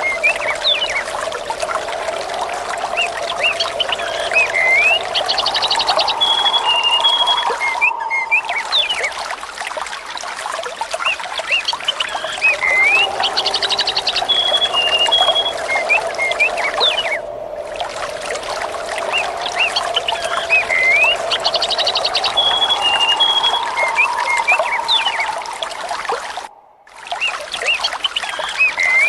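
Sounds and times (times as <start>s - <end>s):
water trickling: 0.0s - 29.0s
birds chirping and whistling: 2.8s - 9.2s, 11.6s - 17.3s, 19.0s - 26.0s, 27.2s - 29.0s.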